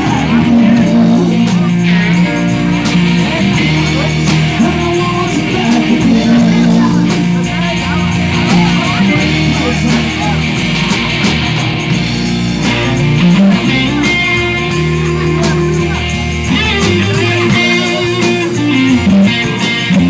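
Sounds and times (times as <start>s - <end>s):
electric guitar: 0.0s - 20.0s
sustained bass notes: 0.0s - 20.0s.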